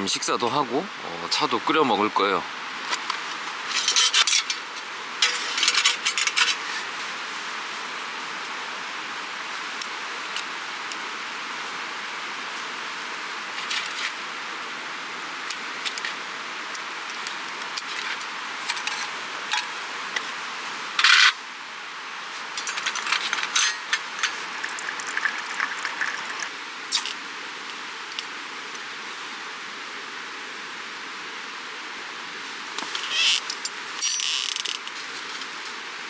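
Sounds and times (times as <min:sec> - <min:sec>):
camp stove gear clicking: 0:02.9 - 0:06.8, 0:22.5 - 0:26.5.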